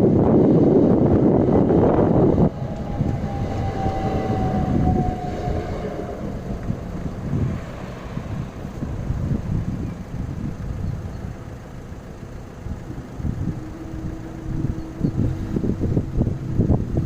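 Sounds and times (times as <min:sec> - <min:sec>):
train wheels rushing past: 0:00.7 - 0:10.5
train whine falling in pitch: 0:00.8 - 0:08.6, 0:12.8 - 0:16.6.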